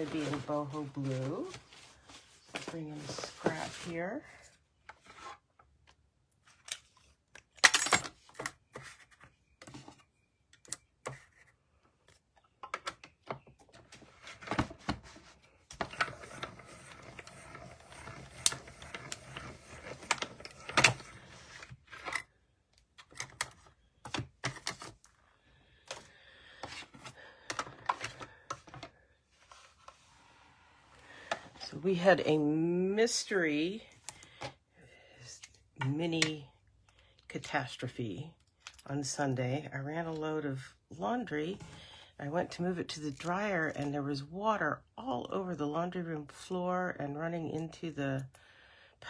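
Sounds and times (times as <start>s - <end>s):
paper rustling: 0.0s - 4.1s.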